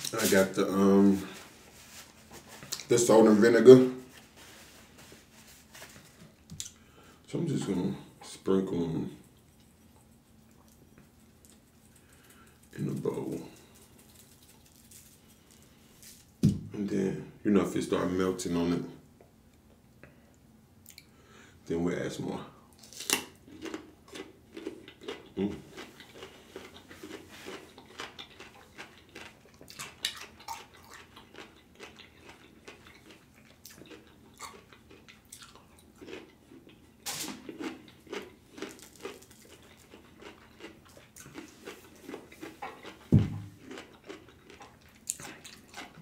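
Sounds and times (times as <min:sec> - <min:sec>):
chewing crunchy cucumber: 0:22.8 - 0:46.0.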